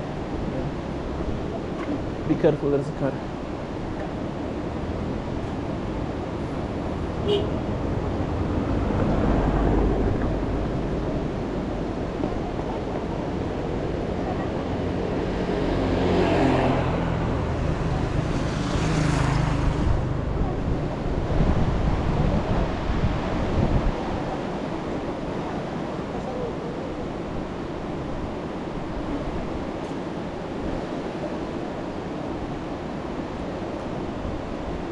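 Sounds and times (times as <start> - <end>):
traffic rumble: 0.0 - 27.1
vehicles passing by: 0.0 - 34.9
wind buffeting microphone: 3.3 - 29.8.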